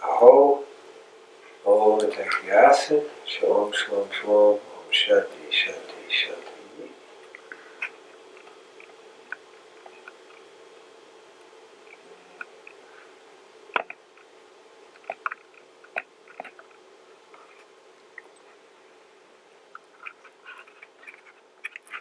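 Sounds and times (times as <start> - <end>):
faint steady hum: 0.0 - 22.0
small clicks and ticks: 7.2 - 10.6, 11.4 - 12.8, 13.7 - 18.6, 19.5 - 22.0.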